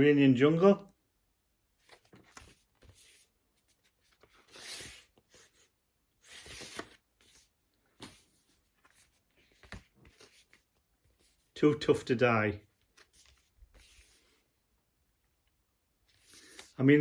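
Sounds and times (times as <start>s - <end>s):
cardboard sleeves sliding and rustling: 1.8s - 11.5s, 12.8s - 14.5s.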